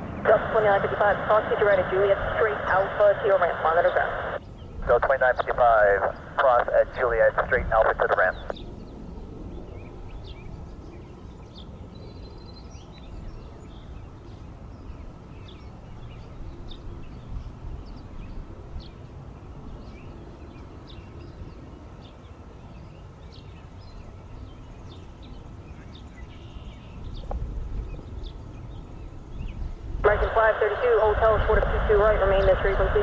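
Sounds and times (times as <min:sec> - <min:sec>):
low outdoor rumble: 0:00.0 - 0:08.6, 0:30.0 - 0:33.0
small birds chirping: 0:00.1 - 0:08.6.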